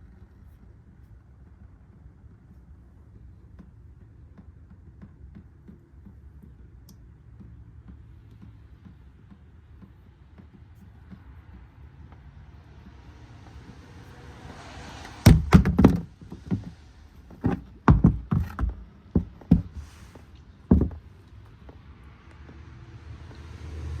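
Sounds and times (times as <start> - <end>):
hard knocks and thuds: 15.0 - 20.0, 20.6 - 21.2.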